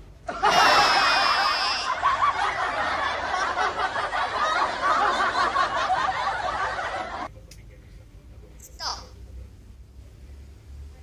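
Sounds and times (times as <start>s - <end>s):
people laughing: 0.3s - 8.0s.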